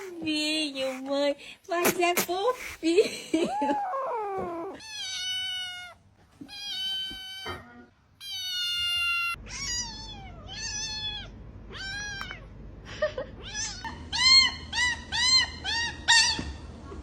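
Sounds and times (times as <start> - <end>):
cat meowing: 4.1 - 12.4.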